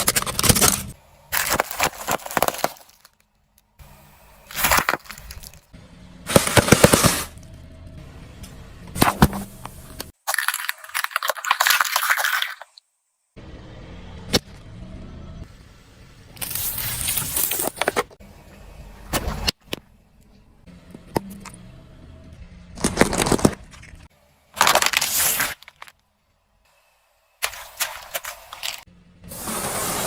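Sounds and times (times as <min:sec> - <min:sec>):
tyre crushing objects: 0:00.0 - 0:03.2, 0:04.5 - 0:05.6, 0:06.3 - 0:07.4, 0:09.0 - 0:09.6, 0:22.8 - 0:24.0
car low rumble: 0:07.3 - 0:10.1, 0:13.4 - 0:24.4.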